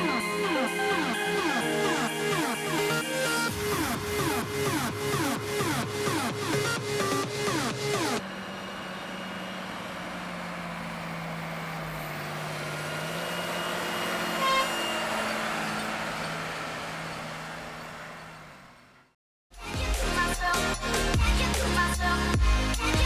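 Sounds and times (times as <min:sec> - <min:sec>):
diesel engine running: 0:00.0 - 0:19.2
short horn toot: 0:14.2 - 0:15.3.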